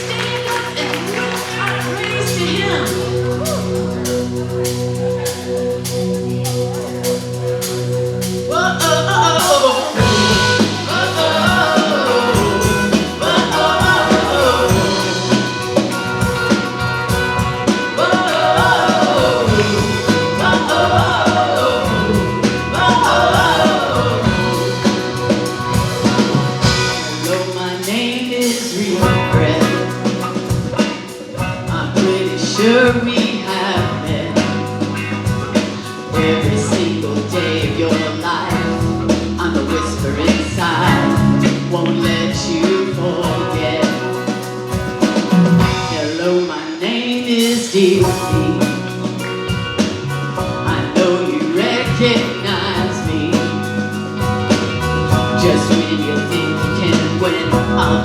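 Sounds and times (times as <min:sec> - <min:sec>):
keyboard chords: 0:00.0 - 0:46.5, 0:47.9 - 0:58.0
drums: 0:00.0 - 0:58.0
person singing: 0:08.5 - 0:34.7, 0:45.1 - 0:49.2, 0:50.6 - 0:53.8, 0:55.1 - 0:58.0.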